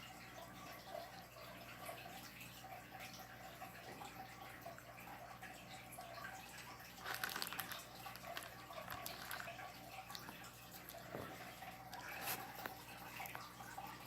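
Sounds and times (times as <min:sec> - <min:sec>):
low room hum: 0:00.0 - 0:14.0
faint clicks and taps: 0:07.1 - 0:13.6.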